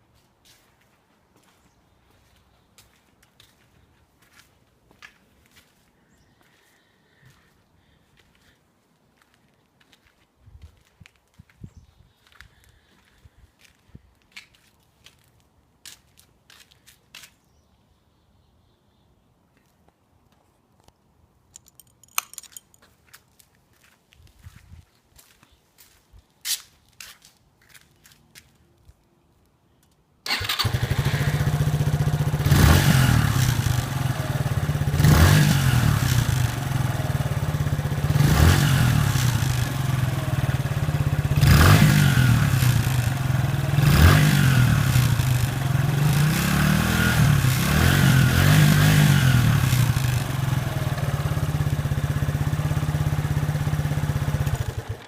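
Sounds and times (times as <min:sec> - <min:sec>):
engine starting and idling: 0:30.2 - 0:32.3, 0:54.6 - 0:55.0.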